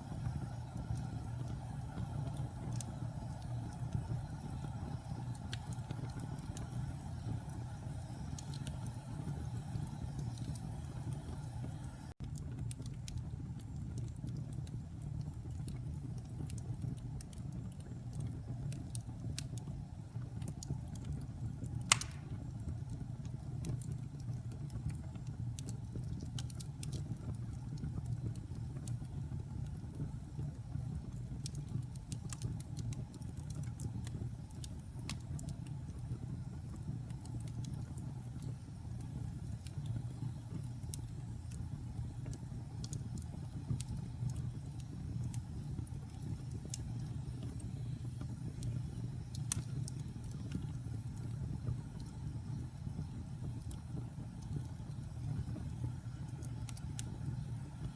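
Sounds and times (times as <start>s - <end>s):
wood fire crackling: 0.0s - 57.9s
loud pop: 21.9s - 22.4s.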